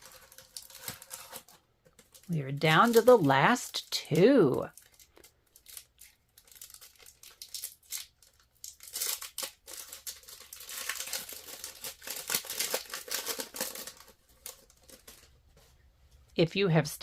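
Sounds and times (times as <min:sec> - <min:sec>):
wrapper being torn and crinkled: 0:00.0 - 0:15.3.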